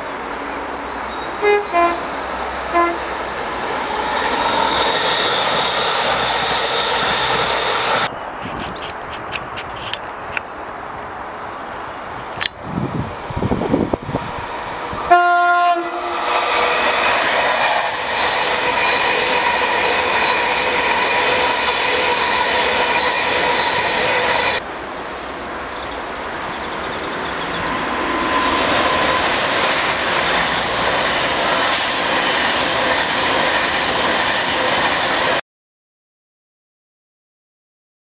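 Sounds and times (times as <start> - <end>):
another train passing: 0.0 - 8.7, 10.8 - 35.4
train passing at speed: 0.0 - 8.9, 10.6 - 35.4
train horn blast: 1.4 - 3.2, 15.1 - 17.9.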